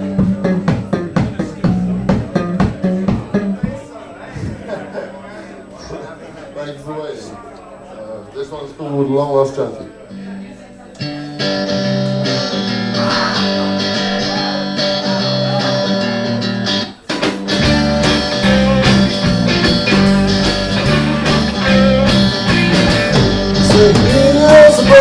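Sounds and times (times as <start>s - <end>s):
deep bass line: 0.0s - 3.6s, 17.6s - 25.0s
blues-rock guitar playing: 0.0s - 3.8s, 11.0s - 25.0s.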